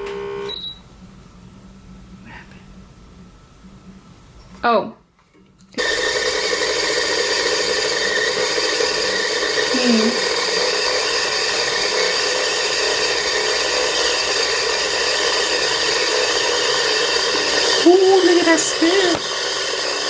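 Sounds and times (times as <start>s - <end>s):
sewing machine winding bobbin: 5.8s - 20.0s.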